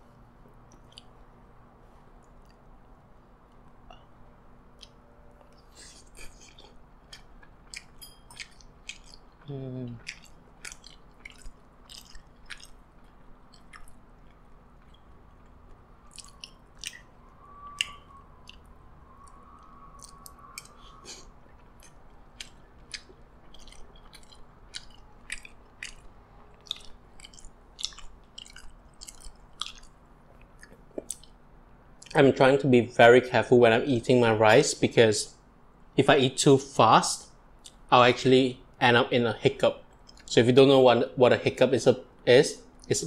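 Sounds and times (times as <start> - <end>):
mouth chewing food: 0.6 - 1.2, 4.7 - 31.4, 39.9 - 40.3.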